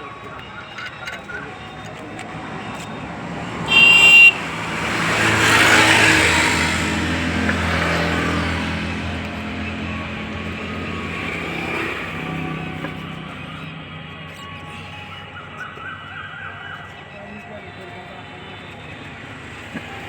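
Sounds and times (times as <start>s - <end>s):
steady engine hum: 0.0s - 20.0s
vehicle passing by: 0.8s - 14.1s
vehicle horn honking: 2.6s - 8.9s.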